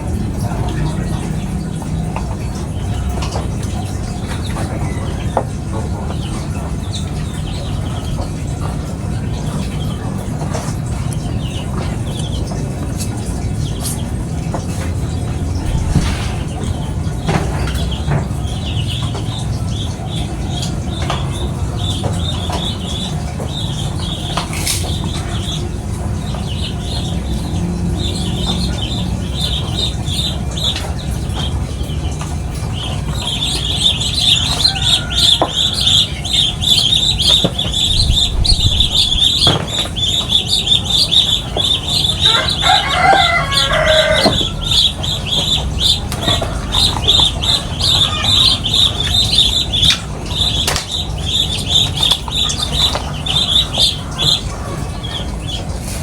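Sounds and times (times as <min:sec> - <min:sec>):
small birds twittering: 0:00.0 - 0:56.0
steady low rumble: 0:14.8 - 0:19.5, 0:37.1 - 0:41.1
low-pitched bird call: 0:15.4 - 0:17.7.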